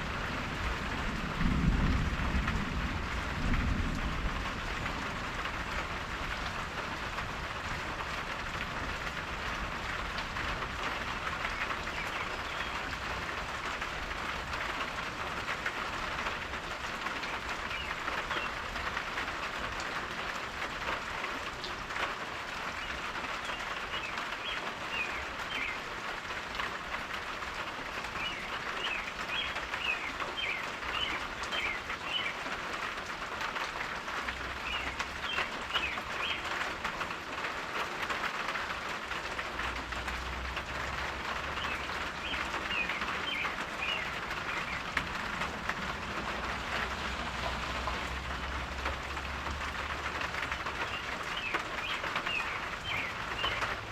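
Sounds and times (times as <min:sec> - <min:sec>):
steady rain falling: 0:00.0 - 0:53.9
bird chirping: 0:41.6 - 0:44.9, 0:50.8 - 0:53.7.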